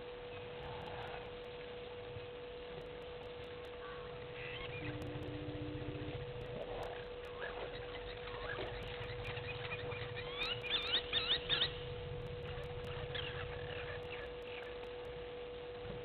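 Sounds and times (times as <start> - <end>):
steady hum: 0.0 - 16.0
birds whistling calls: 6.8 - 14.9.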